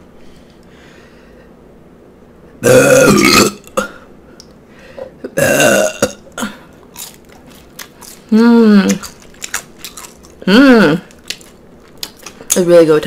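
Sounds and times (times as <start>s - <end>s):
woman burping: 2.6s - 4.0s, 5.2s - 6.7s, 10.4s - 11.0s.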